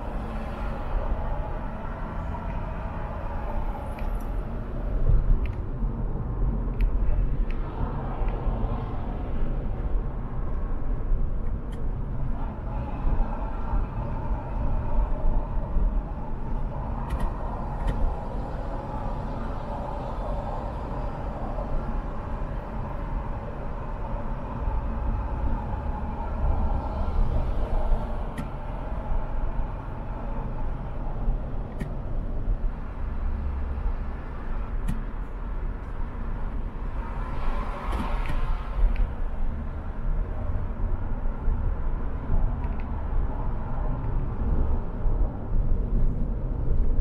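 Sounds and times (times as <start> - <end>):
car driving rumble: 0.0 - 47.0.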